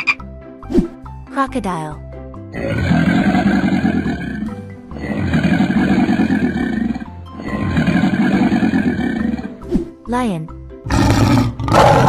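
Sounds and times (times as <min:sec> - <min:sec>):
background music: 0:00.0 - 0:12.0
rasping animal growl: 0:02.5 - 0:09.6, 0:10.9 - 0:12.0.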